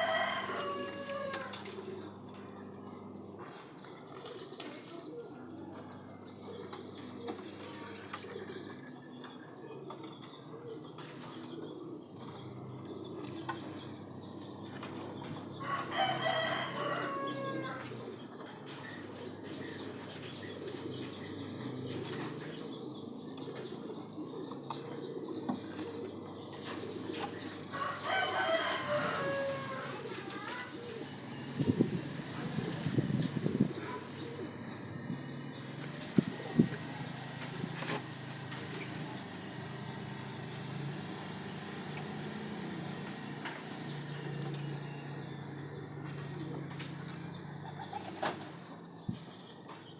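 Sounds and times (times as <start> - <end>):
rooster crowing: 0.0 - 1.8, 15.6 - 18.0, 27.7 - 30.6.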